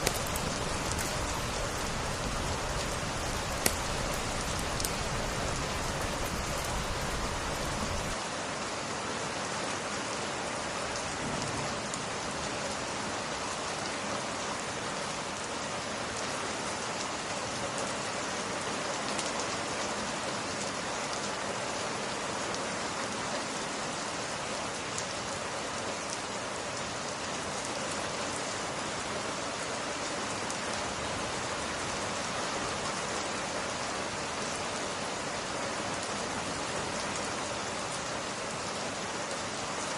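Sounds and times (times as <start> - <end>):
rain falling on glass: 0.0 - 8.2.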